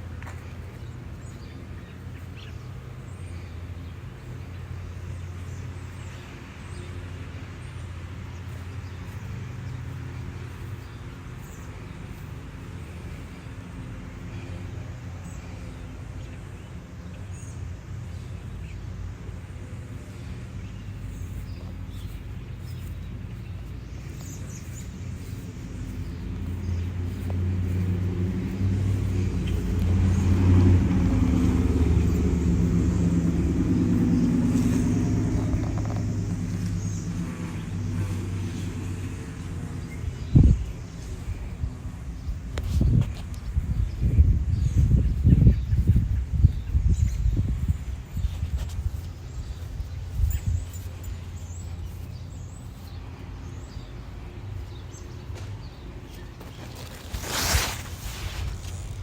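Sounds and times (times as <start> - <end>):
motor engine humming: 19.1 - 40.6.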